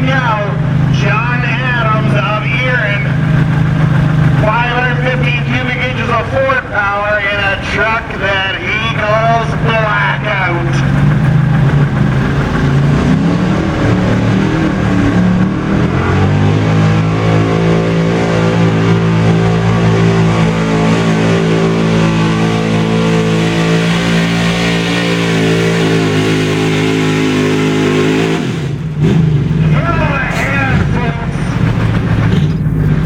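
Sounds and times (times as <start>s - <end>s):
truck engine at full throttle: 0.0s - 33.0s.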